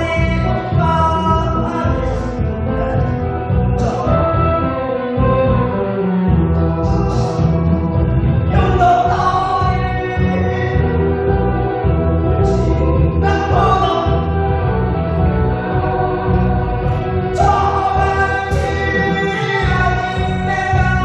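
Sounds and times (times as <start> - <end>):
person singing over band: 15.6 - 21.0.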